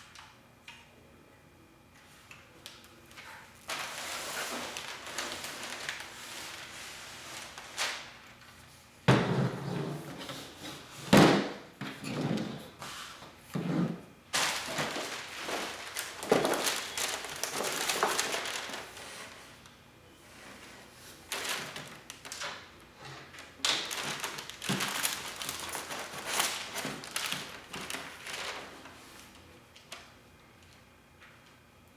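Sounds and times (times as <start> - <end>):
packaging scraping and rustling: 3.6 - 8.1, 12.4 - 19.6, 20.3 - 29.0.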